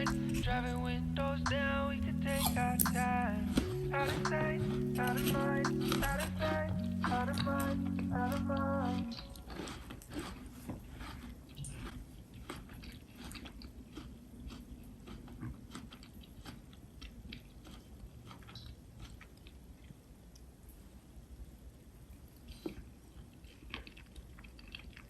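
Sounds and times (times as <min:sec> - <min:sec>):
low room hum: 0:00.0 - 0:25.0.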